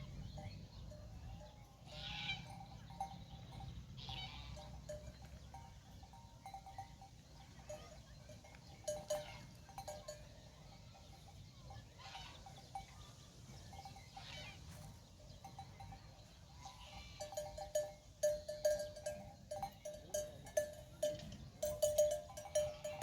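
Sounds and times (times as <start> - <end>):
livestock bells clanking: 0.0 - 23.0
sheep or goats calling: 1.9 - 2.6, 4.0 - 4.8.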